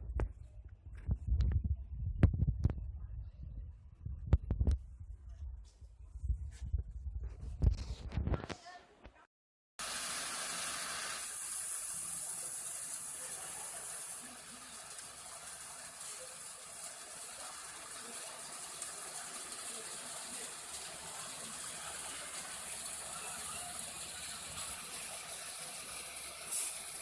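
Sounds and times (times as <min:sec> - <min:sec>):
water jet spraying: 0:09.8 - 0:27.0.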